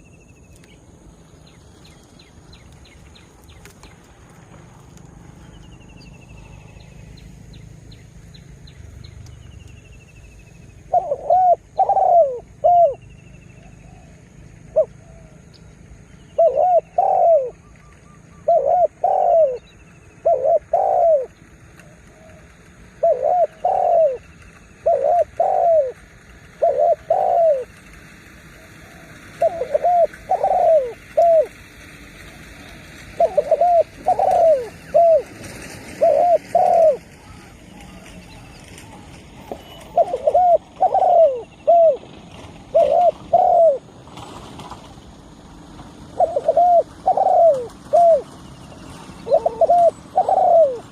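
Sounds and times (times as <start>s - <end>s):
dove cooing: 10.9s - 15.5s, 16.4s - 24.2s, 24.8s - 27.8s, 28.6s - 31.6s, 32.2s - 43.9s, 46.0s - 50.9s.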